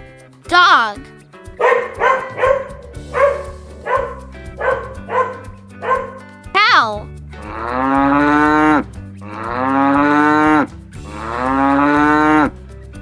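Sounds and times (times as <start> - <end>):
cow mooing: 1.7 - 12.6.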